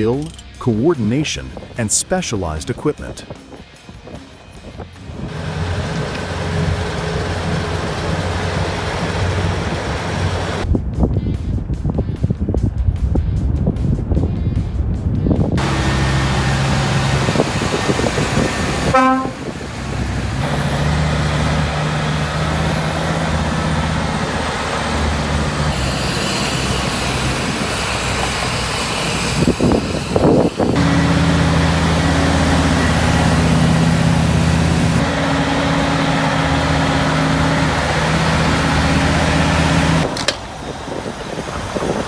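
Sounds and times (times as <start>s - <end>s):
heavy diesel engines running: 4.9s - 10.6s, 15.6s - 42.0s
short horn toot: 18.9s - 19.5s.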